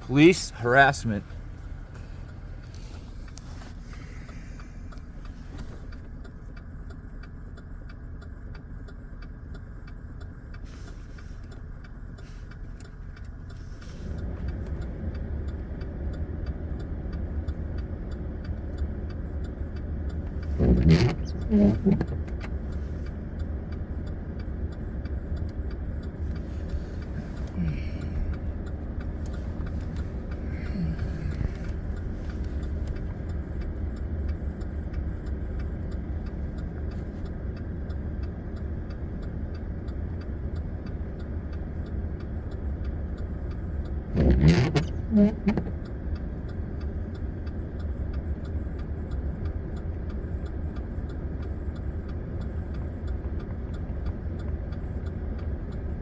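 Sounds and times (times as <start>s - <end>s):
person speaking: 0.0s - 1.3s, 20.6s - 22.1s
truck engine idling: 0.0s - 56.0s.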